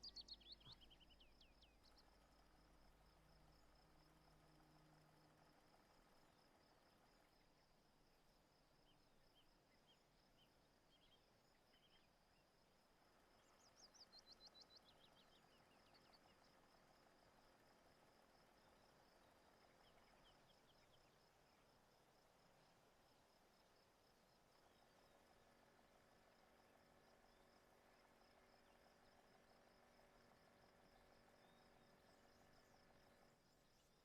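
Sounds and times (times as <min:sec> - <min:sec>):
bird chirps: 0:00.0 - 0:02.2.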